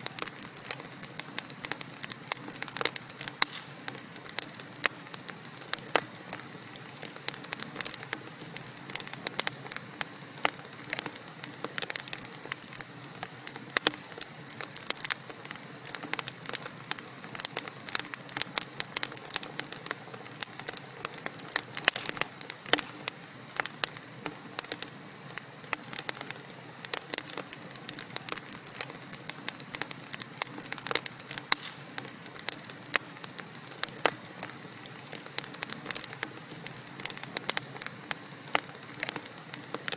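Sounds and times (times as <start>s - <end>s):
logs crackling and popping: 0.0s - 39.9s
soft fire hiss: 0.0s - 39.9s.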